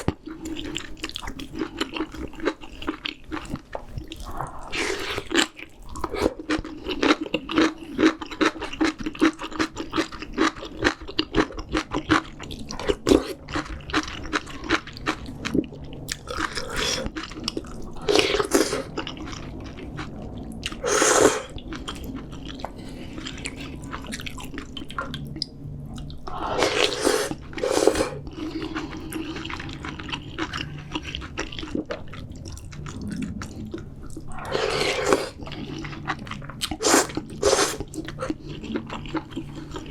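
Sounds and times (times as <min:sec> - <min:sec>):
wet chewing: 0:00.0 - 0:39.9
loud slurping: 0:18.0 - 0:18.9, 0:20.7 - 0:21.6, 0:26.3 - 0:28.3, 0:34.3 - 0:35.4, 0:36.7 - 0:38.4.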